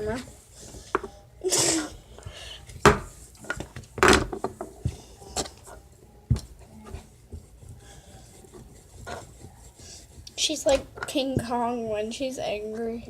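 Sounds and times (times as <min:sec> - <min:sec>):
hard objects knocking on a table: 0:02.8 - 0:04.7
rubbing on a table: 0:06.8 - 0:10.8.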